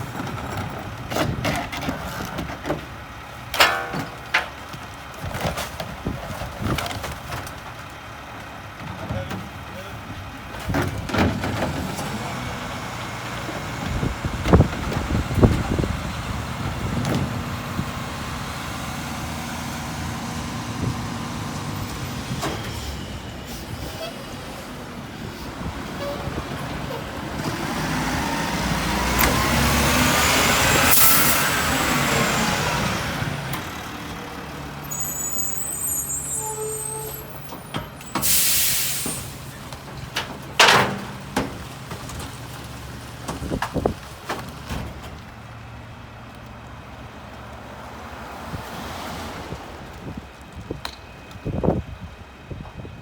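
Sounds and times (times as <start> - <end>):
garbage truck diesel engine: 0.0 - 53.0
air hiss: 38.2 - 39.4.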